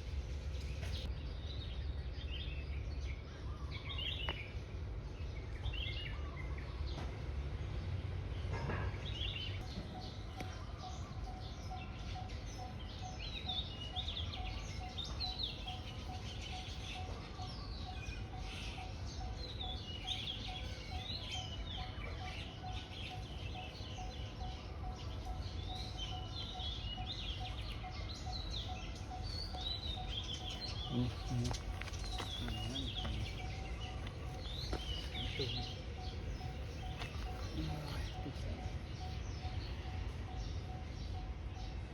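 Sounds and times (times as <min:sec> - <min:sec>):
wild birds chirping and singing: 0:00.0 - 0:41.9
steady low rumble: 0:09.6 - 0:41.9.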